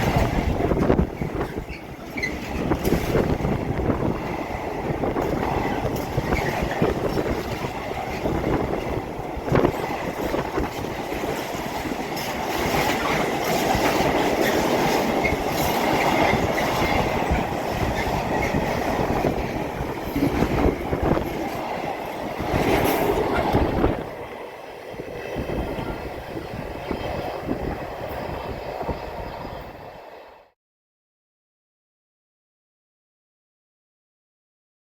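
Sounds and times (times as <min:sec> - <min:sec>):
sharp rail clicks: 0:00.0 - 0:04.0, 0:05.0 - 0:24.4
train running on track: 0:00.0 - 0:30.6.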